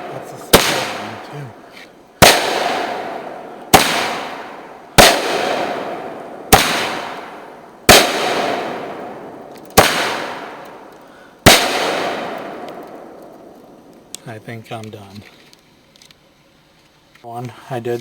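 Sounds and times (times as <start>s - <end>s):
firework bangs with hiss: 0.0s - 14.2s.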